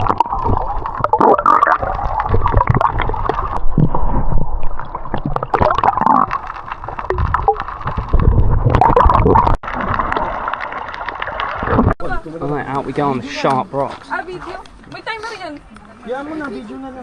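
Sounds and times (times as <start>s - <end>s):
muffled water gurgling and sloshing: 0.0s - 12.9s.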